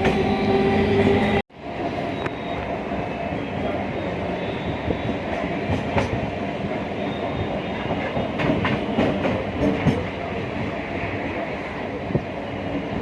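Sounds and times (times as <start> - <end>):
train wheels rumbling: 0.0 - 13.0
wheels clacking over rail joints: 8.0 - 10.2.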